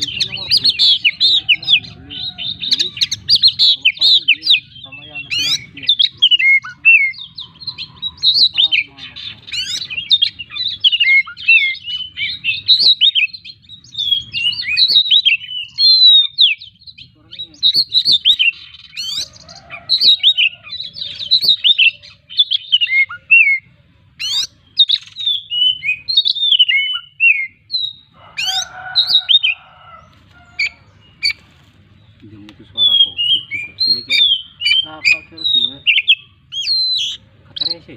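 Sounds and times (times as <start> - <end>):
songbird whistles and chirps: 9.5 - 37.8.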